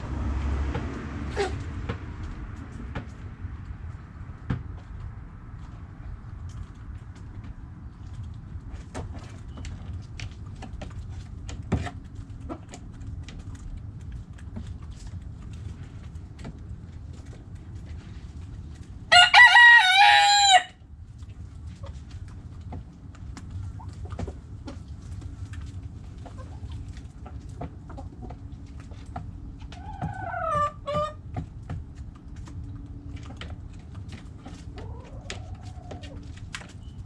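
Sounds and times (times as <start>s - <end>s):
low steady rumble: 0.0s - 37.0s
rooster crowing: 19.1s - 20.8s.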